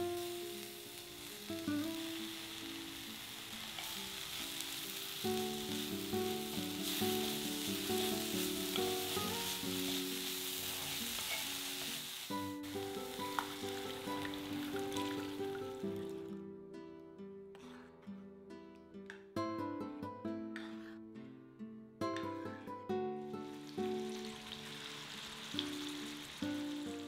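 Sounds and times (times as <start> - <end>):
vegetables sizzling in a pan: 0.0 - 16.3, 23.3 - 27.0
soft background music: 0.0 - 27.0
spatula stirring: 7.8 - 11.8.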